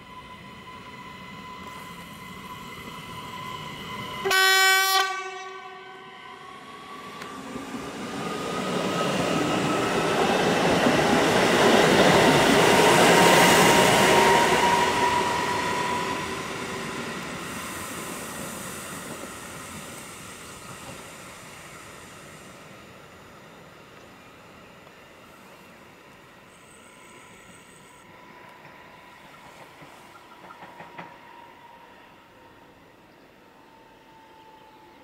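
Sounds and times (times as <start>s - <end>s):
train wheels rushing on rails: 0.0s - 32.0s
rising train motor whine: 0.0s - 35.0s
train horn blast: 4.2s - 6.1s.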